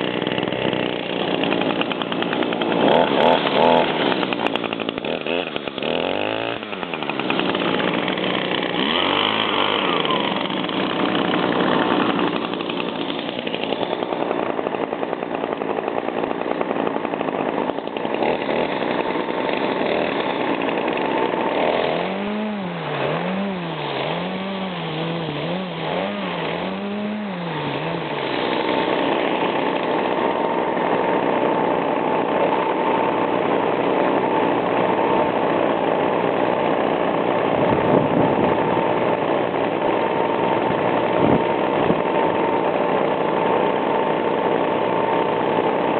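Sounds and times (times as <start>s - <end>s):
small two-stroke engine revving: 0.0s - 45.9s.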